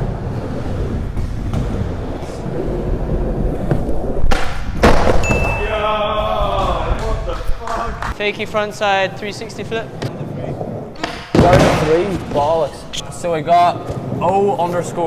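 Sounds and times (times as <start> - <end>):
skateboard wheels rolling: 0.0 - 15.0
skateboard popping and landing: 3.3 - 5.3, 9.9 - 12.6.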